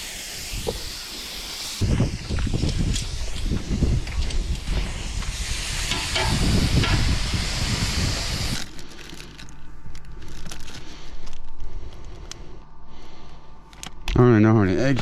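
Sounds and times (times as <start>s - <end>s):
shrimp sizzling in a pan: 4.2s - 7.4s.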